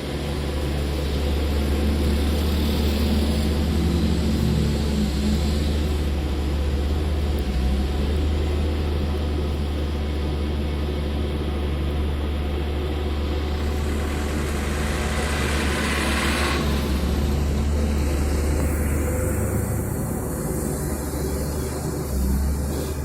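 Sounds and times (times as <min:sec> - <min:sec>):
excavator diesel engine humming: 0:00.0 - 0:23.0
hiss: 0:13.4 - 0:23.0.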